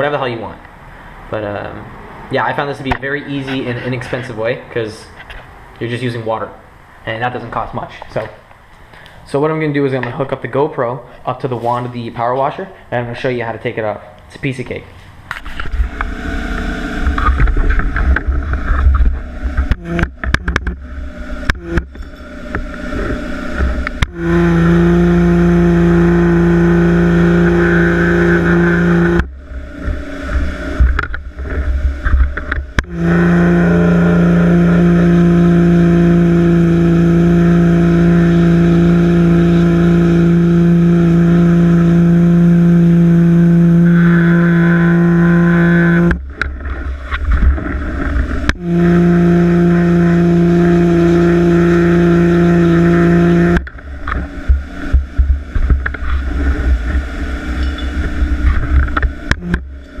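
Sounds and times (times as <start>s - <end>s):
rough low rumbling noise: 0.0s - 60.0s
pressure washer spraying: 19.8s - 30.8s, 31.7s - 46.2s, 48.6s - 53.6s.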